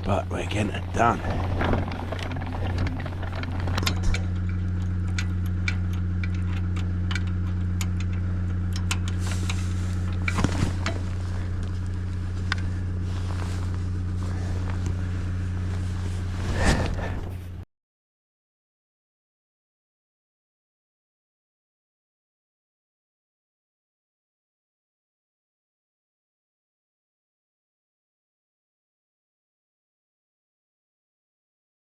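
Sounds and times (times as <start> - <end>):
vehicle engine idling: 0.0 - 17.6.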